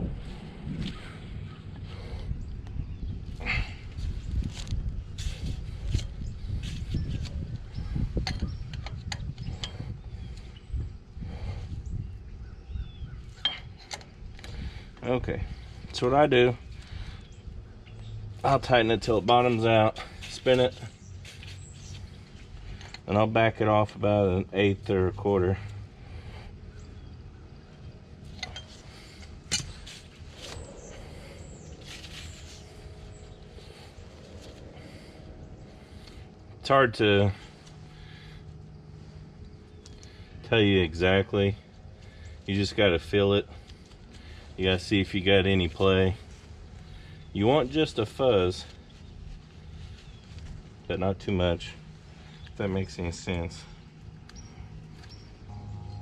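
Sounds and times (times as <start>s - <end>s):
low steady rumble: 0.0s - 56.0s
metal tools clinking and scraping: 13.3s - 14.1s, 28.2s - 31.0s.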